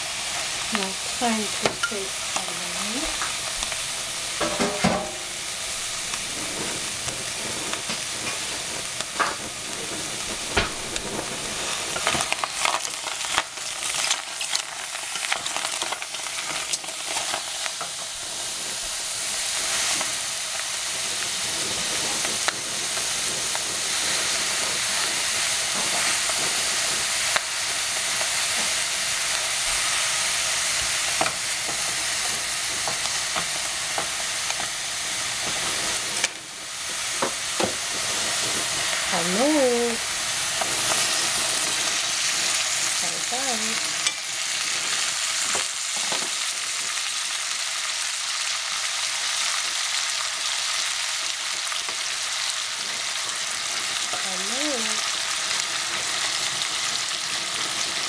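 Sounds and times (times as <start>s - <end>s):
squash sizzling in a saucepan: 0.0s - 58.0s
wooden spatula scraping a pan: 4.4s - 12.8s.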